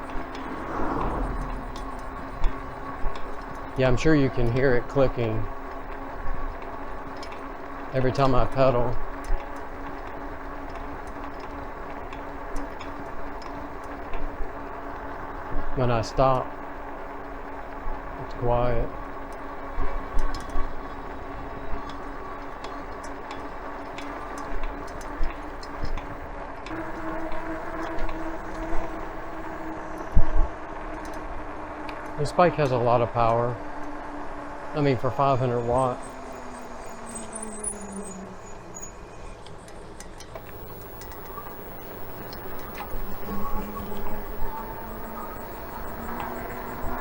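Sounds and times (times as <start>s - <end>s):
wind noise: 0.0s - 4.4s
electric bike motor whine: 0.0s - 47.0s
bicycle pedal clicking: 19.2s - 30.3s, 39.4s - 47.0s
light clicks: 39.4s - 47.0s.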